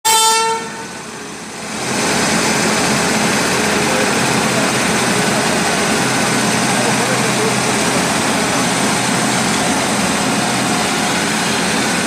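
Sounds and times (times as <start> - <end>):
horn note: 0.1 - 1.0
train running noise: 0.1 - 12.0.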